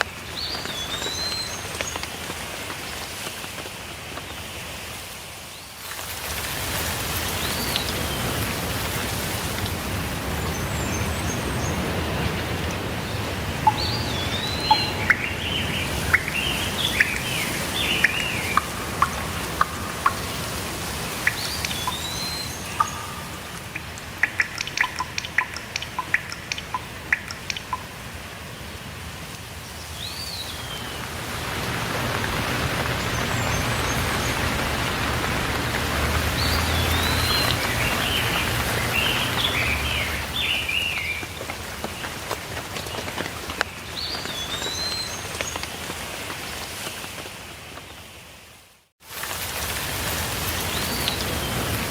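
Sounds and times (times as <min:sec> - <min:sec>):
rain drops tapping: 0:00.0 - 0:48.1, 0:49.0 - 0:51.9
small birds calling: 0:10.3 - 0:28.0, 0:31.8 - 0:42.2.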